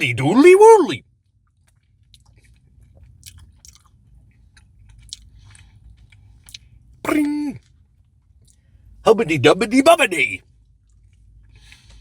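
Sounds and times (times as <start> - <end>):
man chewing ice cream: 1.4 - 7.8.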